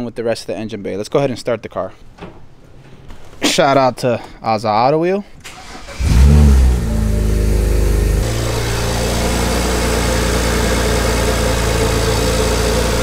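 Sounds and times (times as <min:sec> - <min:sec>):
car engine idling: 0:05.5 - 0:13.0.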